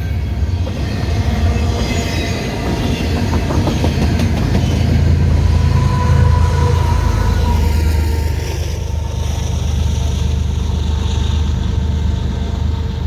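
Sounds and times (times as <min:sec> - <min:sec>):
freight train rumbling past: 0:00.0 - 0:13.0
wheels clicking over rail joints: 0:02.5 - 0:05.2.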